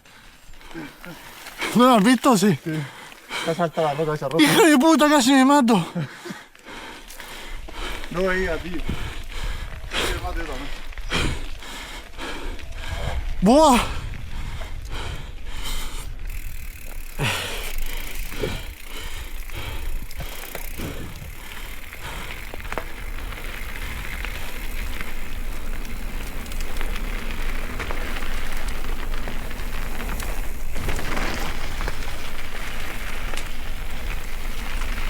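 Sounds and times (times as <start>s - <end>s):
bike rattling on rocky trail: 0.1s - 35.0s
tyre and wind noise: 7.4s - 35.0s.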